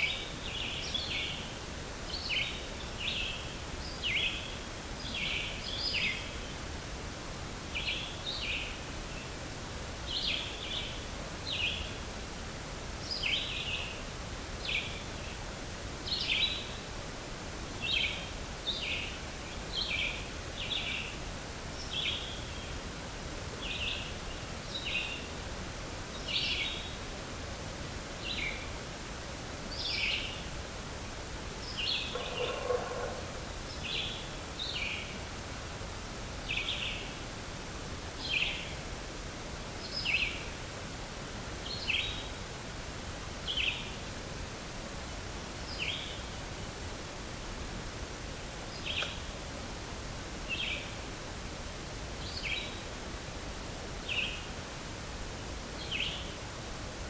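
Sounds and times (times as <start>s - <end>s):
outdoor background hiss: 0.0s - 57.0s
bird chirping: 31.7s - 34.8s.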